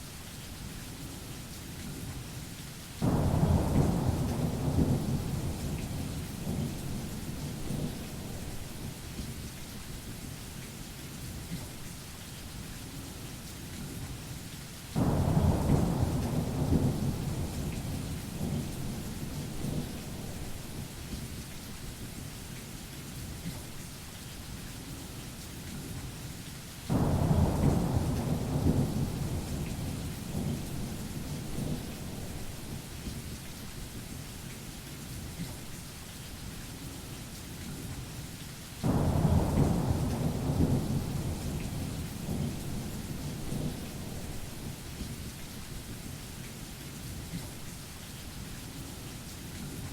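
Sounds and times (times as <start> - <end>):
rain hiss: 0.0 - 49.9
thunder rolling: 38.9 - 44.8.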